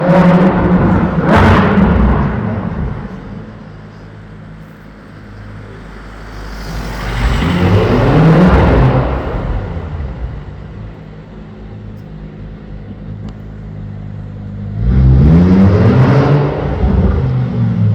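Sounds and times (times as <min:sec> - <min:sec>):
sports car engine accelerating: 0:00.0 - 0:17.9.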